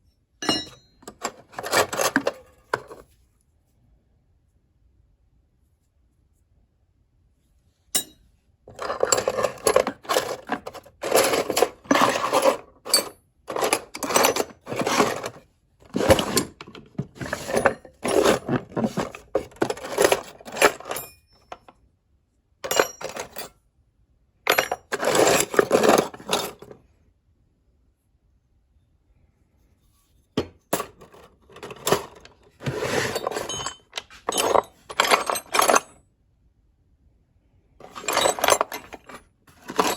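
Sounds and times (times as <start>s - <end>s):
metal tools clinking: 0.4s - 3.0s, 8.0s - 21.6s, 22.6s - 23.5s, 24.5s - 26.8s, 30.7s - 36.0s, 37.8s - 39.9s.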